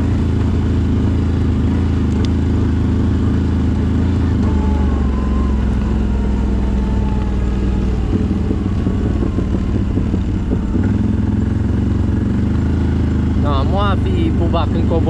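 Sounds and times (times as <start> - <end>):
engine running while riding: 0.0 - 15.0.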